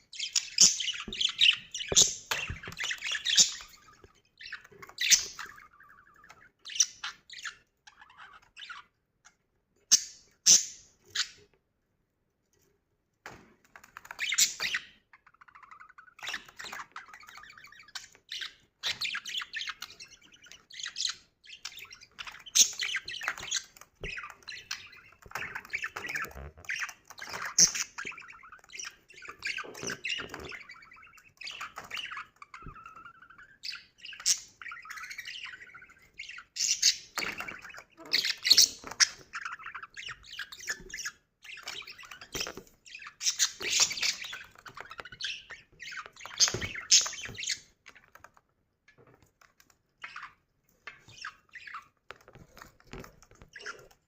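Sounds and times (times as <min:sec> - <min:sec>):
budgerigar chirps and squawks: 0:14.2 - 0:47.7.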